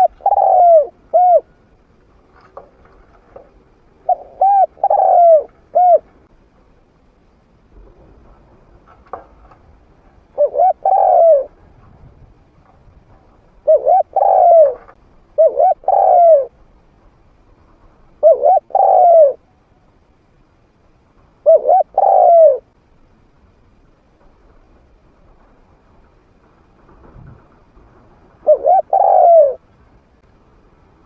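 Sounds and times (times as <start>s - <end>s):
dove cooing: 0.0s - 1.6s, 2.6s - 6.2s, 10.3s - 11.7s, 13.6s - 16.6s, 18.2s - 19.4s, 21.4s - 22.7s, 28.4s - 29.7s.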